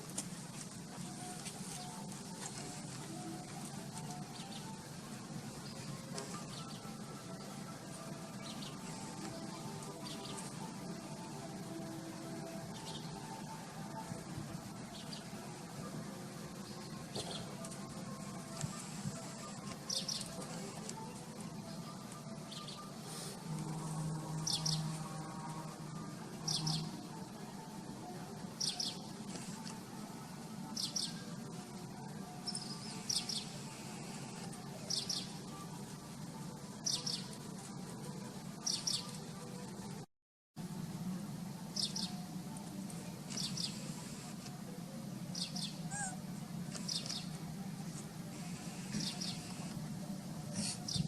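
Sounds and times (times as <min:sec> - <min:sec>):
bird chirping: 0:19.4 - 0:20.4, 0:24.3 - 0:25.1, 0:26.4 - 0:26.9, 0:28.6 - 0:29.1, 0:32.4 - 0:34.1, 0:34.8 - 0:35.6, 0:36.8 - 0:37.4, 0:38.6 - 0:39.2, 0:41.8 - 0:42.2, 0:45.3 - 0:47.4, 0:48.4 - 0:49.6, 0:50.5 - 0:51.0.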